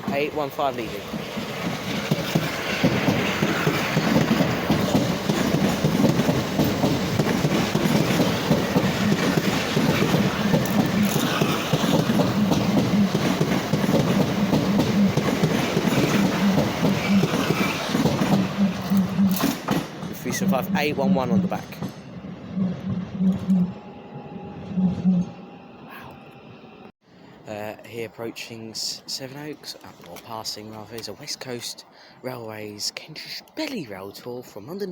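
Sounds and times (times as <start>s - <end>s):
train wheels on rail: 0.0s - 25.5s.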